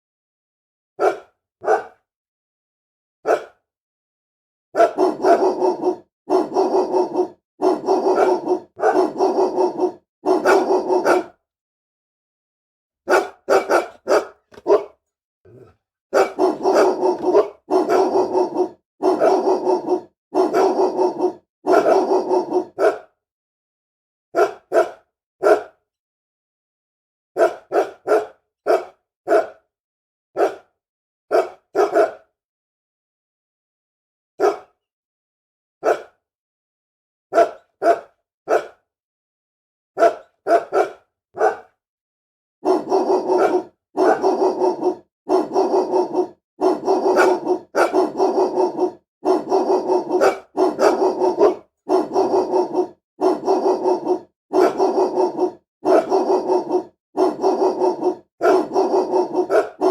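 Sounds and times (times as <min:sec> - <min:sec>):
dog barking angrily: 0:01.0 - 0:02.0, 0:03.3 - 0:03.6, 0:04.8 - 0:11.4, 0:13.1 - 0:23.1, 0:24.4 - 0:25.8, 0:27.4 - 0:29.6, 0:30.4 - 0:30.7, 0:31.3 - 0:32.3, 0:34.4 - 0:34.7, 0:35.8 - 0:36.2, 0:37.3 - 0:38.8, 0:40.0 - 0:41.7, 0:42.6 - 0:59.9.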